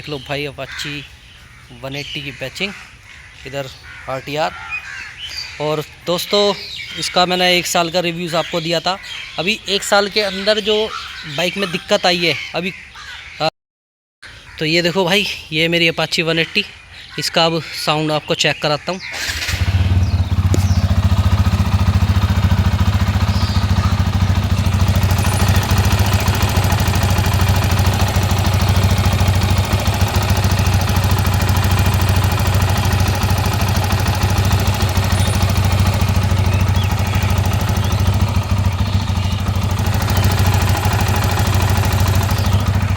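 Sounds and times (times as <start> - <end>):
motorcycle engine idling: 19.2 - 42.9.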